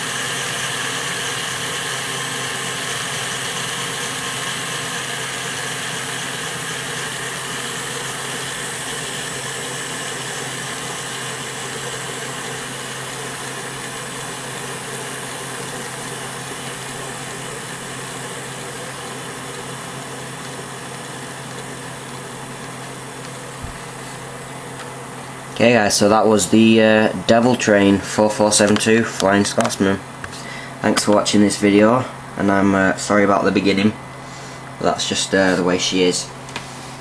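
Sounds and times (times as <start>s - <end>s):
model train motor whirring: 0.0s - 24.9s
low hum: 0.0s - 30.7s.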